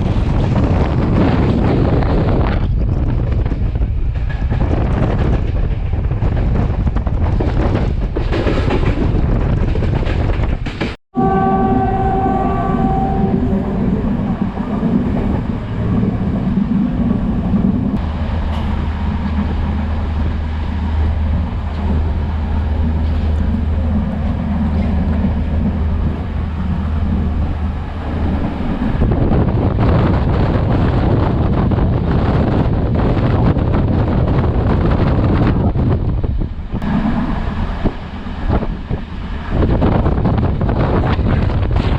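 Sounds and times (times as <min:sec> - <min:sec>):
train running noise: 0:00.0 - 0:41.9
train horn: 0:11.1 - 0:14.2.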